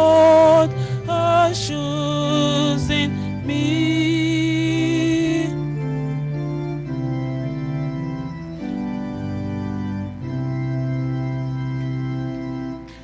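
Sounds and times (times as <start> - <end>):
person singing: 0.0 - 6.1
organ keyboard chords: 0.0 - 13.0.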